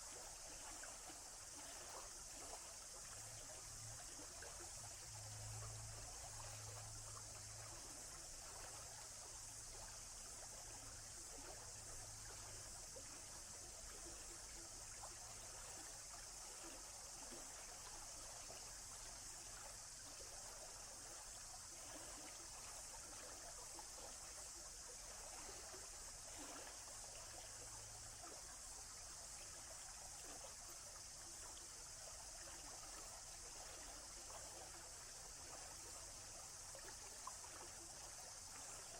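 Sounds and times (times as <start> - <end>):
flowing water rushing: 0.0 - 38.9.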